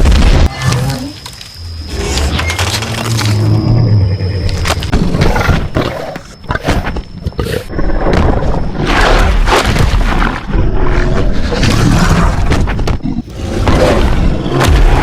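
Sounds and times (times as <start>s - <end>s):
loud animal roars: 10.2s - 15.0s.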